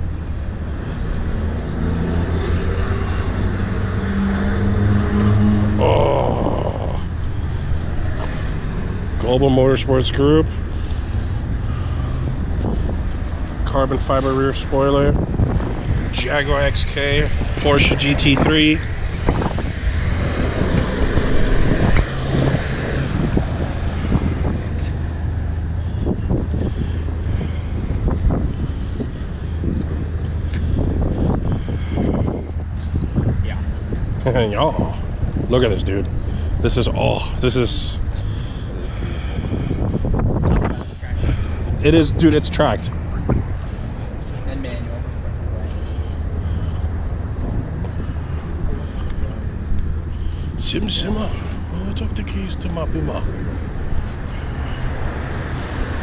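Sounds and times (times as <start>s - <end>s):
low engine drone: 0.0s - 56.0s
tyre and road noise: 0.0s - 56.0s.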